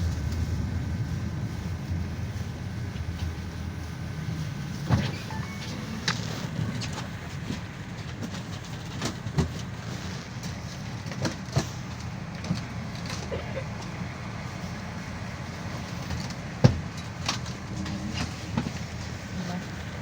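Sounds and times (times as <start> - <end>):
engine and road rumble: 0.0 - 20.0
body knocks and rattles: 6.2 - 13.6.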